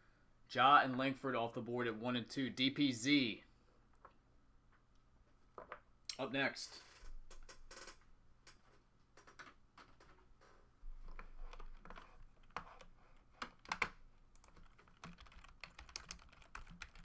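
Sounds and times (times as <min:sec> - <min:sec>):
typing on computer keyboard: 0:09.2 - 0:10.2, 0:11.0 - 0:17.0.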